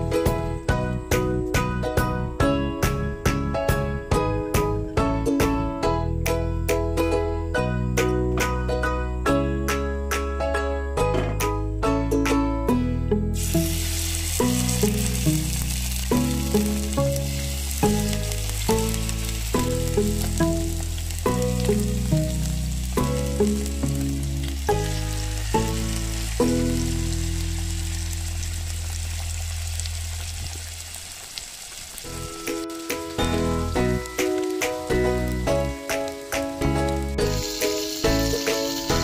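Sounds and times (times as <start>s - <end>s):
music with plucked melody and bass: 0.0s - 30.3s, 32.1s - 39.0s
chicken sizzling in hot oil: 13.4s - 39.0s.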